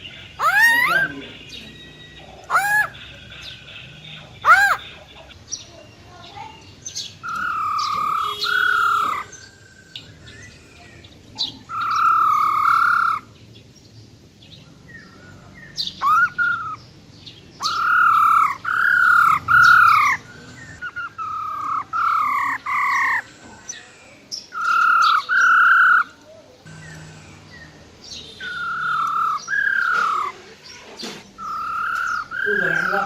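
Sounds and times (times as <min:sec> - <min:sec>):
bird rolling call: 0:00.4 - 0:01.2, 0:02.4 - 0:03.0, 0:04.4 - 0:04.9, 0:07.2 - 0:09.5, 0:11.7 - 0:13.3, 0:17.6 - 0:23.2, 0:28.4 - 0:33.0.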